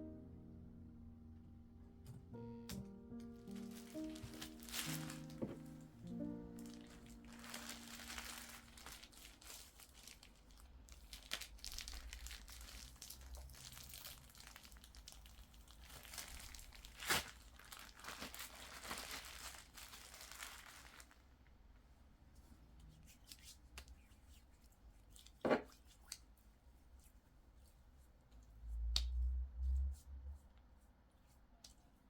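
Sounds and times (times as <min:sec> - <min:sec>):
crinkling and rustling of plastic: 0:03.2 - 0:21.6.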